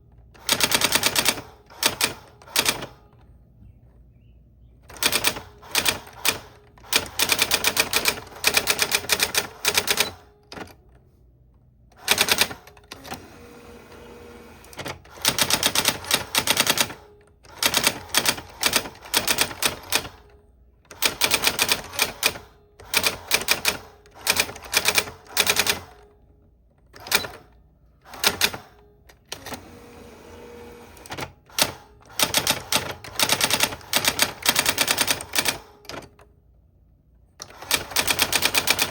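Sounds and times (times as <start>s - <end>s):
typewriter keys clattering: 14.8s - 20.3s, 31.1s - 36.2s, 37.5s - 38.9s.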